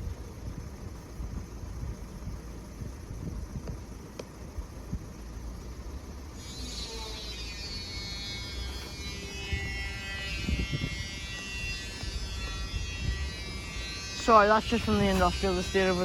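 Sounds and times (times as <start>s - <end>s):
machinery buzzing whine: 4.7s - 16.0s.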